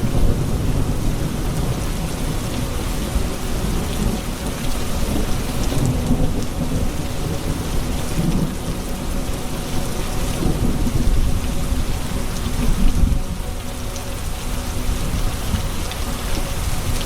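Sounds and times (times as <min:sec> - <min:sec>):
heavy rain: 0:00.0 - 0:17.0
thunder rumbling: 0:00.0 - 0:17.0.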